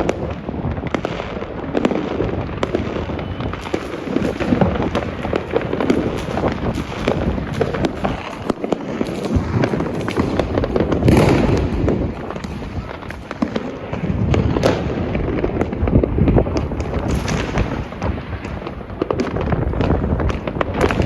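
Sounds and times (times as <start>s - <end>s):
fireworks cracks and bangs: 0.0s - 21.0s
rumble of distant explosions: 0.0s - 21.0s.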